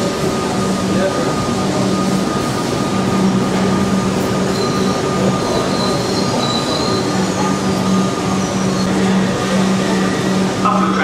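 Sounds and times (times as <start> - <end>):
train rumble and hum: 0.0 - 11.0
thin high squeal: 5.6 - 9.0.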